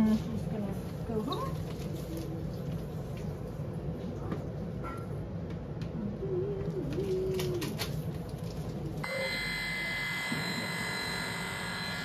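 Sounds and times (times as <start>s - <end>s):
electric clippers buzzing: 9.0s - 12.0s.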